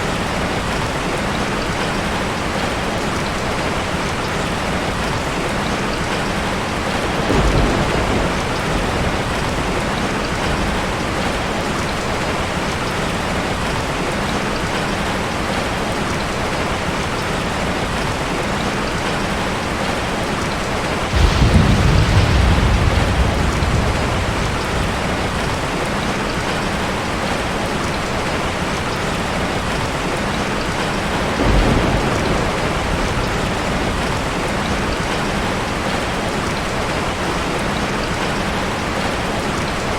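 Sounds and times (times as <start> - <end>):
heavy rain: 0.0 - 39.9
thunder rumbling: 6.6 - 12.6, 20.9 - 27.4, 29.4 - 36.6.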